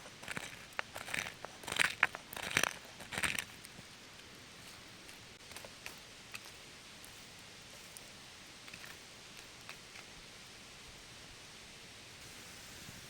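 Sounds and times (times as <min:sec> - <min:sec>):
small clicks and rustles: 0:00.0 - 0:10.6
faint hiss: 0:02.9 - 0:13.0.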